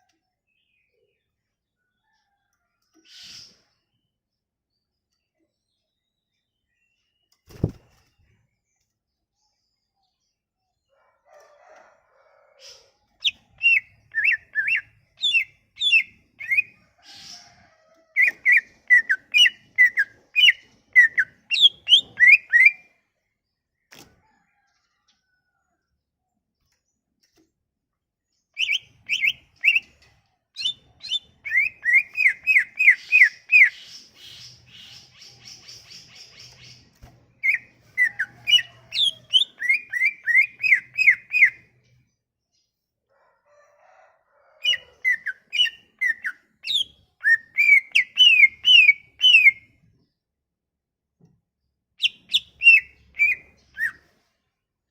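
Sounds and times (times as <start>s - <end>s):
songbird singing: 12.7s - 17.5s, 18.1s - 23.0s, 28.4s - 42.9s, 44.6s - 50.1s, 52.0s - 54.3s.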